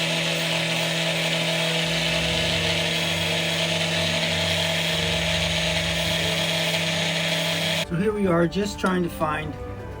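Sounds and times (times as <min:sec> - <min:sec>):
power tool motor running: 0:00.0 - 0:07.8.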